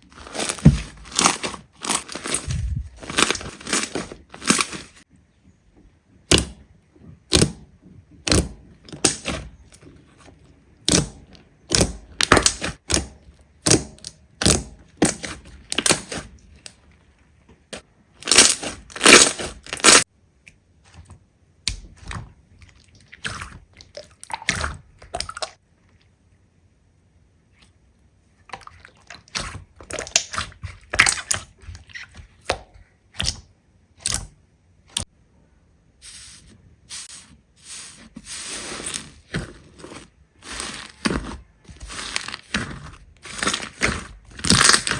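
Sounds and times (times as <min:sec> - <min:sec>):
slime crackling and popping: 0:18.2 - 0:20.1, 0:41.9 - 0:44.9.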